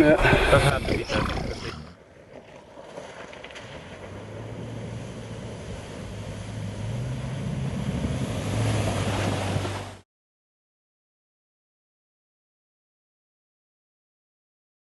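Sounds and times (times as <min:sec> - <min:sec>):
engine running with low hum: 0:03.4 - 0:10.0.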